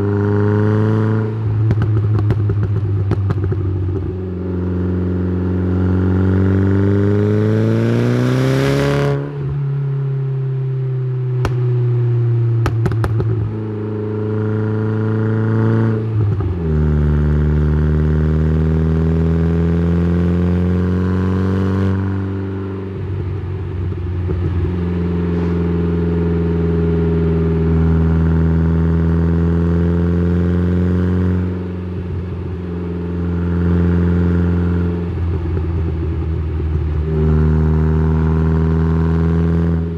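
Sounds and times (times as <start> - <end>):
car exhaust revving: 11.4 - 15.1
exhaust cracks: 12.6 - 13.6.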